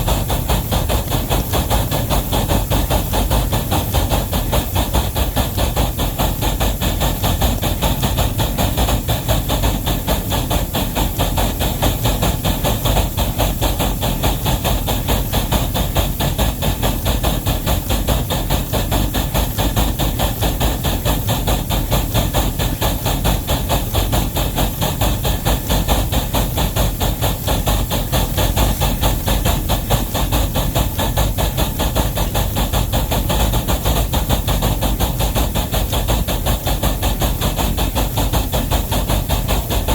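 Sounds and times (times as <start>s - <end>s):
steady steam hiss: 0.0s - 39.9s
steam locomotive exhaust beats: 0.0s - 39.9s.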